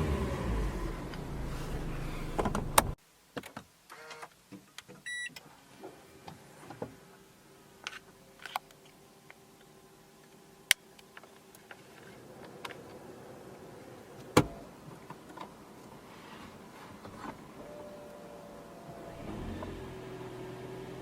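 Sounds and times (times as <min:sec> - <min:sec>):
car engine running: 0:00.0 - 0:03.0.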